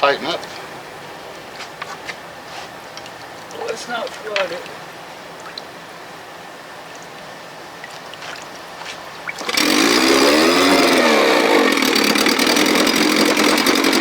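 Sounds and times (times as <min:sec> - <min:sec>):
outboard motor starting and running: 0:08.0 - 0:14.0.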